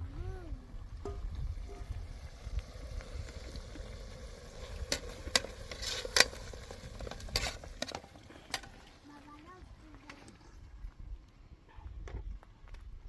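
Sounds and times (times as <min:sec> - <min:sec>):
low steady rumble: 0:00.0 - 0:07.6.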